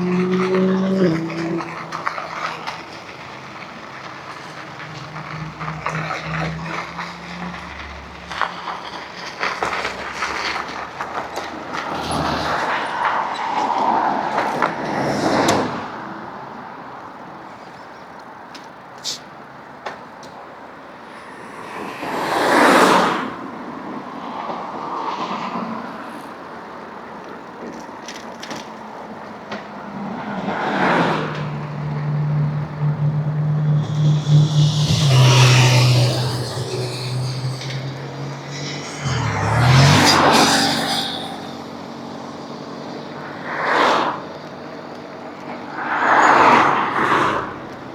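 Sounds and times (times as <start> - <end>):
vehicles whooshing past: 0.0 - 16.0, 30.1 - 44.6
wind and tyre noise: 0.0 - 19.0, 20.8 - 47.9
low engine hum: 31.5 - 42.1.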